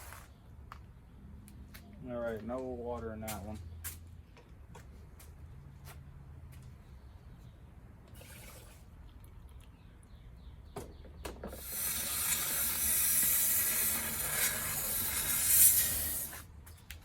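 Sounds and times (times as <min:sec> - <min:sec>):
rushing liquid hiss: 0:11.6 - 0:16.4.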